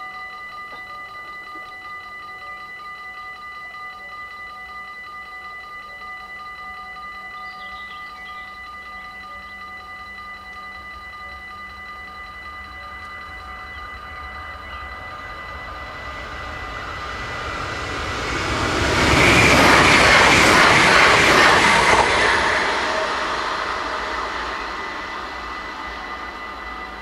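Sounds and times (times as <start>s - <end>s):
crossing warning bells ringing: 0.0s - 27.0s
train passing at speed: 12.0s - 27.0s.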